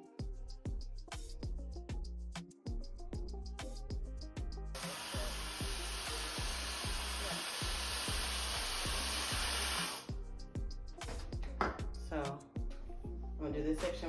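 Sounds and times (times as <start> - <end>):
hair dryer running: 4.8 - 10.1.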